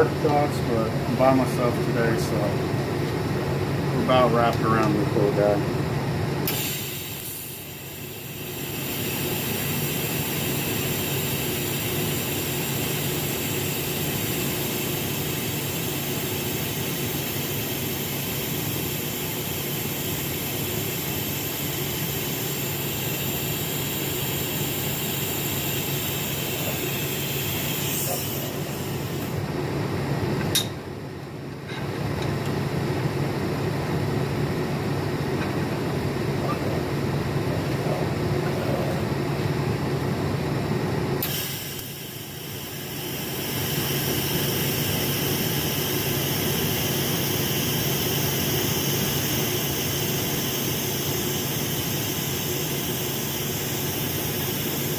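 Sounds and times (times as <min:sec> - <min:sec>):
welding arc hissing: 0:06.5 - 0:29.4, 0:41.2 - 0:54.9
welder click: 0:41.2 - 0:42.0.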